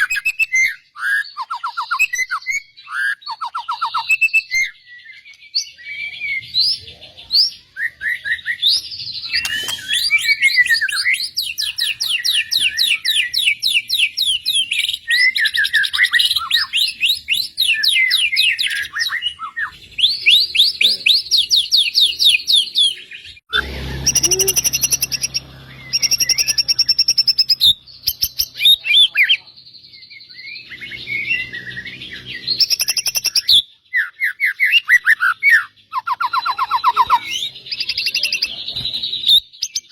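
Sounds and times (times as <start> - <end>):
songbird trilling and chirping: 0.0 - 39.9.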